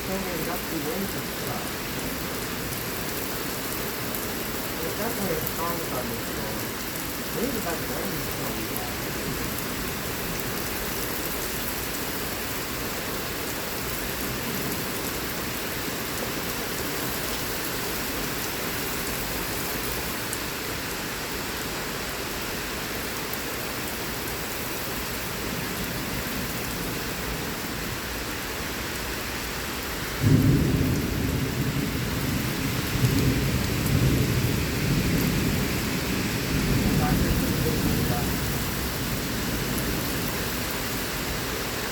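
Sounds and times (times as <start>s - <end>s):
heavy rain falling: 0.0s - 41.9s
thunder clap and rumble: 30.2s - 41.5s.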